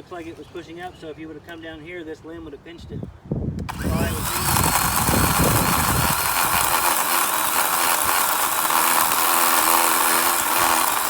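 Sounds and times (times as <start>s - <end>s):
electric chainsaw cutting wood: 3.7s - 11.0s.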